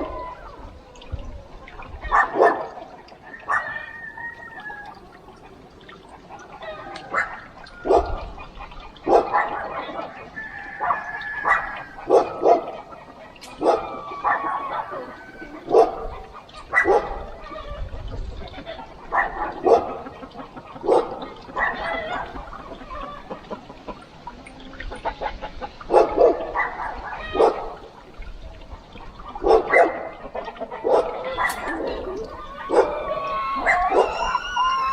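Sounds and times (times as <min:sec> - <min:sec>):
dog barking: 0:02.1 - 0:02.8, 0:07.1 - 0:08.2, 0:09.0 - 0:10.2, 0:10.8 - 0:17.3, 0:19.1 - 0:20.1, 0:20.8 - 0:21.8, 0:25.9 - 0:27.9, 0:29.4 - 0:30.2, 0:30.8 - 0:34.8.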